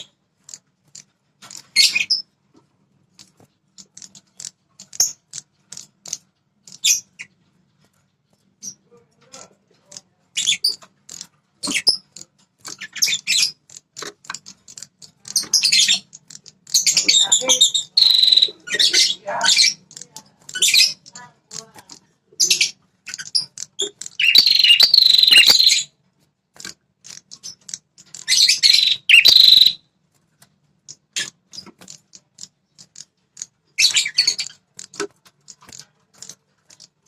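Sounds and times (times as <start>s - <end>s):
songbird high chirps: 15.2s - 21.7s, 22.4s - 25.9s, 27.3s - 29.8s.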